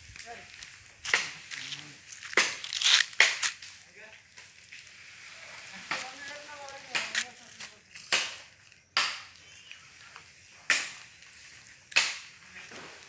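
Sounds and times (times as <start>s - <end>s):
branches being chopped: 0.1s - 3.8s, 5.8s - 9.4s, 10.5s - 13.0s.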